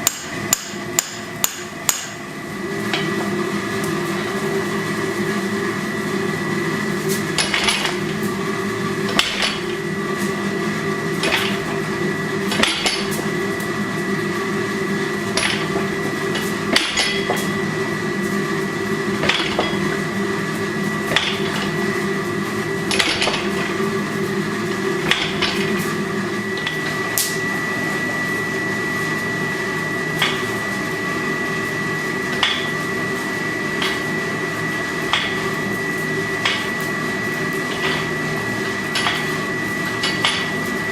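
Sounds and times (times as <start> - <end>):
hammer striking hot steel: 0.0 - 2.2, 2.9 - 3.3, 7.1 - 8.3, 9.1 - 10.4, 11.1 - 11.8, 12.4 - 13.3, 15.2 - 17.6, 19.2 - 20.0, 21.0 - 21.8, 22.8 - 23.9, 25.0 - 25.9, 26.6 - 27.4, 30.2 - 30.6, 32.3 - 32.9, 33.7 - 34.2, 34.9 - 36.9, 37.5 - 40.9
steady hum: 0.0 - 40.9.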